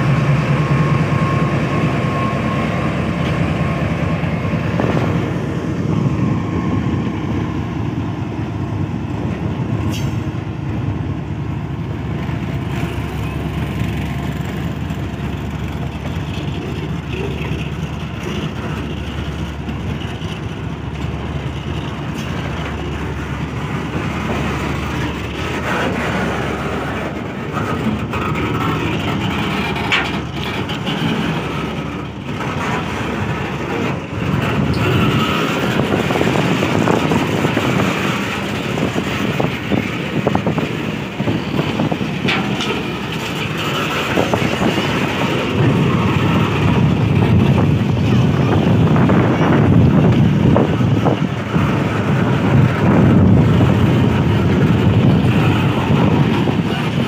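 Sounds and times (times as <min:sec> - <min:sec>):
train wheels rumbling on rails: 0:00.0 - 0:57.0
wagons clanking: 0:12.1 - 0:57.0.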